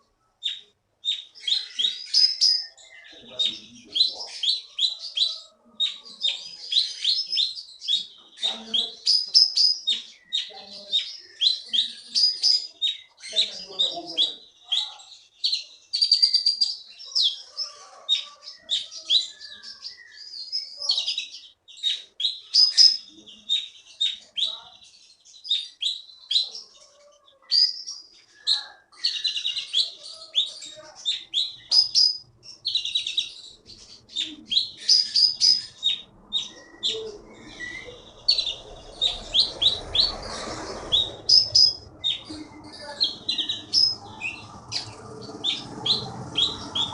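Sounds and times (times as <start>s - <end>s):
songbird singing: 0.0s - 46.9s
low rushing noise: 35.6s - 46.9s.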